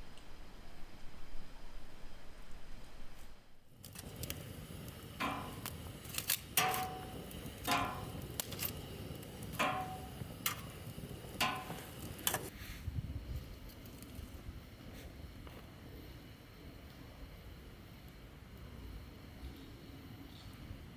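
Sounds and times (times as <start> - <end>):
sharp metallic knocks: 5.2 - 5.6, 6.6 - 8.2, 9.5 - 10.7, 11.4 - 12.0.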